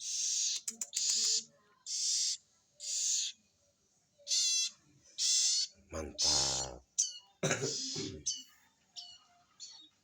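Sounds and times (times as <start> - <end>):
baby bird begging calls: 0.0 - 3.4, 4.2 - 8.4.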